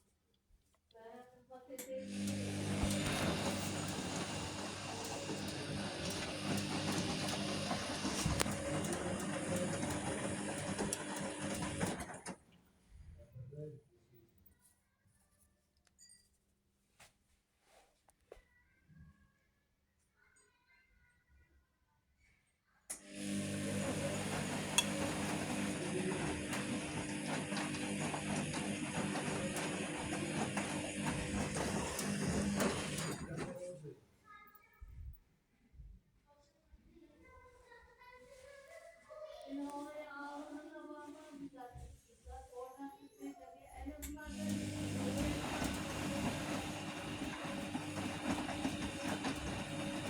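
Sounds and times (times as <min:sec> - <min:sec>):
washing machine motor humming: 0:02.0 - 0:12.4, 0:22.9 - 0:33.9, 0:44.1 - 0:50.0.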